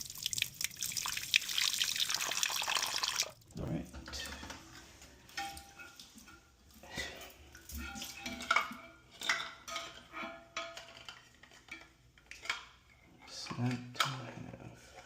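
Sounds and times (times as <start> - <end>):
toilet tank parts clinking: 3.9 - 15.0.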